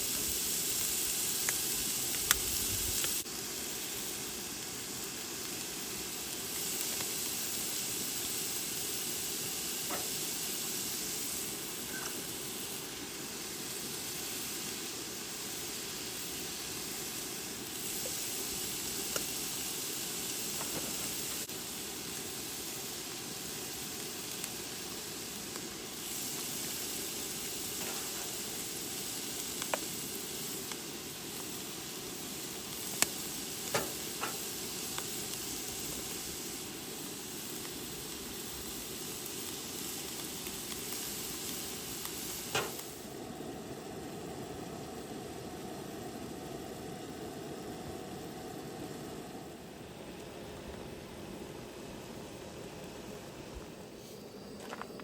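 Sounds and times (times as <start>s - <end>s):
beef sizzling in a pan: 0.0s - 50.4s.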